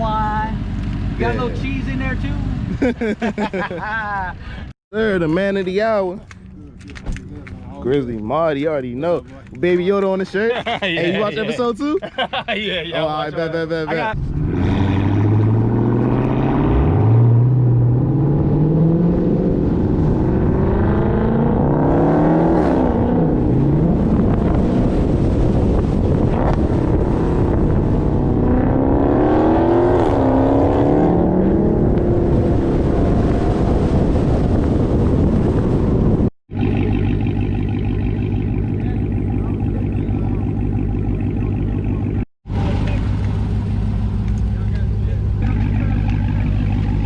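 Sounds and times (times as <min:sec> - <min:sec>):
car engine revving hard: 0:14.1 - 0:35.2.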